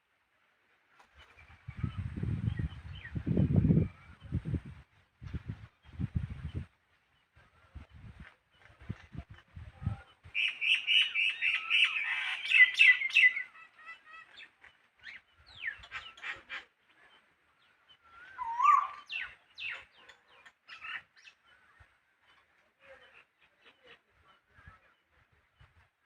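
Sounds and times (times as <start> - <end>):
small birds chirping: 1.2 - 25.9
short whistled bird call: 18.1 - 19.8.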